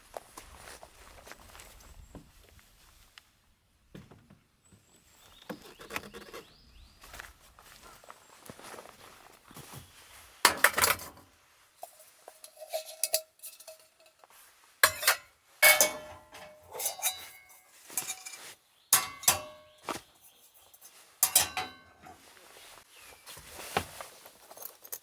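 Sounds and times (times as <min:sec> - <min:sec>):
metal objects clinking together: 0:10.5 - 0:11.2, 0:11.8 - 0:14.2, 0:14.8 - 0:22.2, 0:24.4 - 0:25.0.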